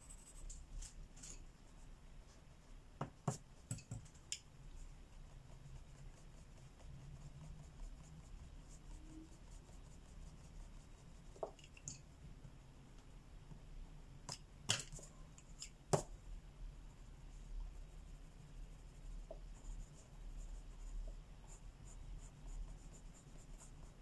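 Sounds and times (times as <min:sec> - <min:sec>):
low steady hum: 0:00.0 - 0:24.0
scratching of colouring on paper: 0:03.2 - 0:11.8, 0:16.9 - 0:24.0.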